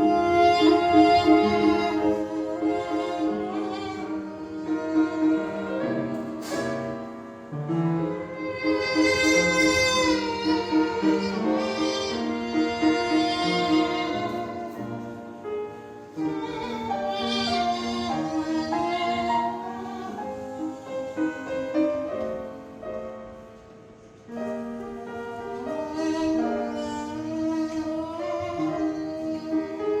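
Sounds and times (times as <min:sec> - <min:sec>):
classical string ensemble: 0:00.0 - 0:15.4
violin melody: 0:00.0 - 0:23.2, 0:24.1 - 0:30.0.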